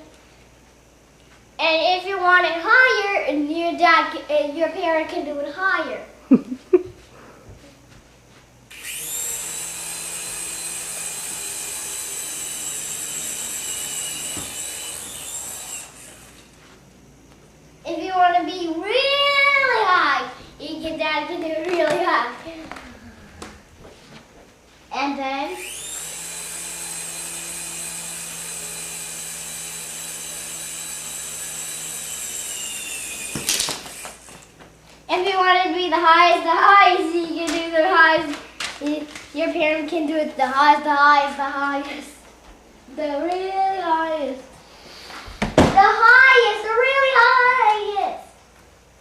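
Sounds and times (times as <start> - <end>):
toy helicopter rotor whining: 8.7 - 16.5, 25.4 - 34.5.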